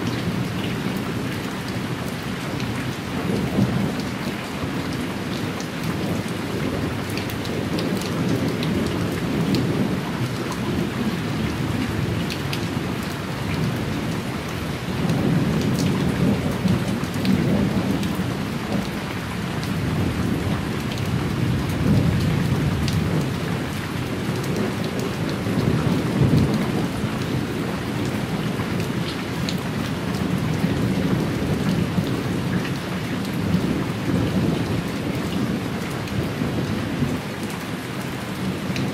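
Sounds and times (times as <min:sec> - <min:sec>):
rain pattering: 0:00.0 - 0:38.9
low rolling thunder: 0:14.9 - 0:18.9, 0:19.7 - 0:29.2.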